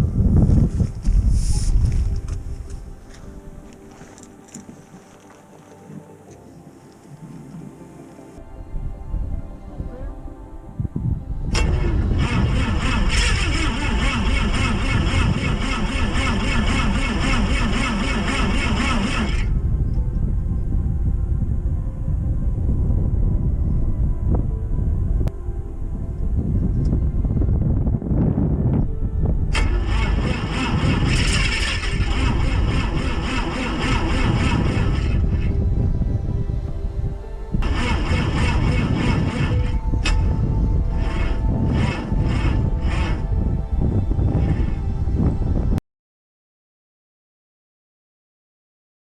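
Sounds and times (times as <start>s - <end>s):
airplane engine cranking: 11.5s - 19.6s, 29.5s - 35.7s, 37.6s - 45.0s.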